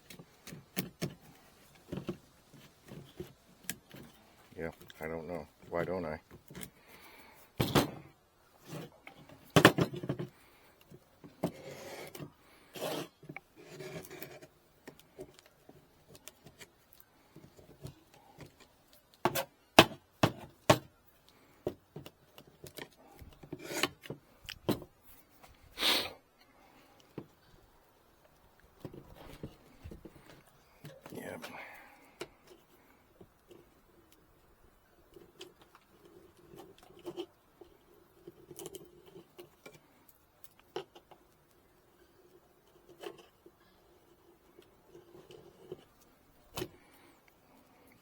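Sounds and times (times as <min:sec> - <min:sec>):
wood scraping rubs: 0:08.6 - 0:19.5
wooden frames knocking and clicking: 0:09.2 - 0:10.3.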